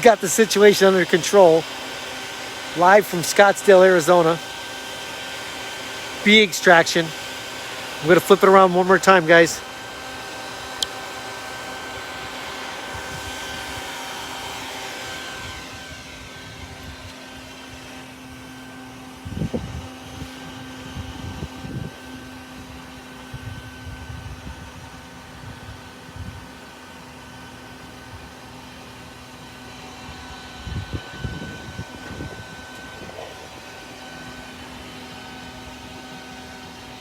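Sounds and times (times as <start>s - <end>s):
vacuum motor running: 0.0s - 37.0s.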